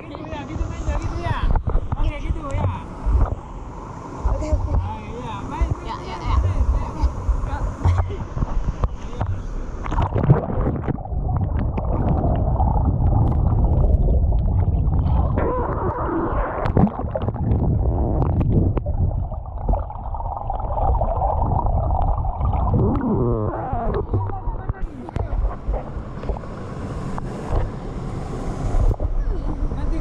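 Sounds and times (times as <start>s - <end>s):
muffled underwater rumbling: 4.3s - 27.8s.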